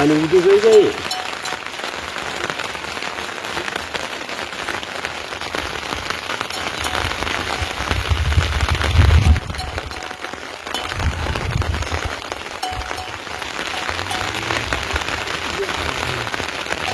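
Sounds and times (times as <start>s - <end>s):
steady rain falling: 0.0s - 16.9s.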